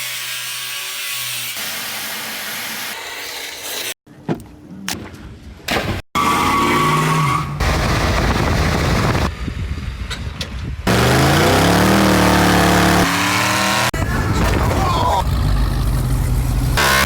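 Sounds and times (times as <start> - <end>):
car engine revving: 10.9 - 14.0, 15.2 - 17.0.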